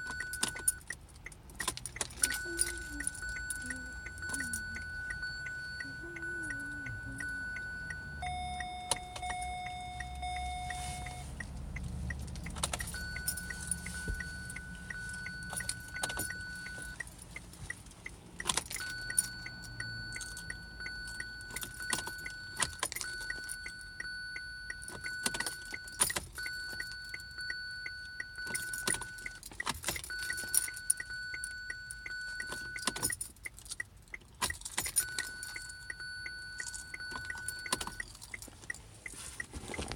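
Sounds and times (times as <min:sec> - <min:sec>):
sharp metallic clicks and rattles: 0:00.0 - 0:10.5, 0:11.4 - 0:39.9
electronic beep tone: 0:02.3 - 0:11.5.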